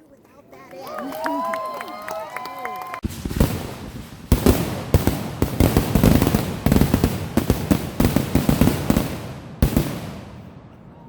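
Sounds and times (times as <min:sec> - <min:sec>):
fireworks bangs and crackling: 0:03.0 - 0:11.0.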